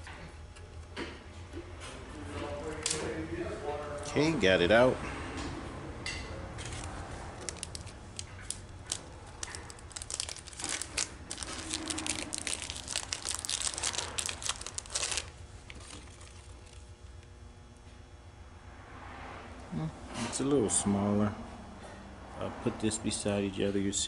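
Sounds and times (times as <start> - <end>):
plastic packaging crinkling: 6.6 - 16.9.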